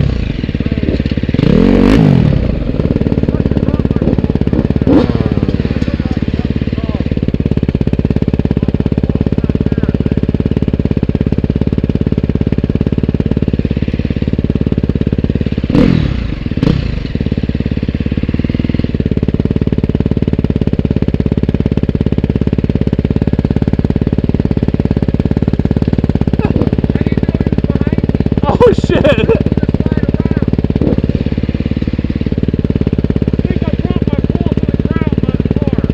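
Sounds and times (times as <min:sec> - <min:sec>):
motorcycle engine idling: 0:00.0 - 0:35.9.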